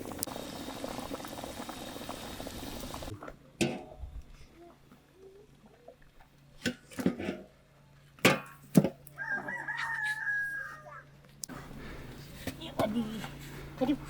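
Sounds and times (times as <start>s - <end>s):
rooster crowing: 9.2s - 11.1s.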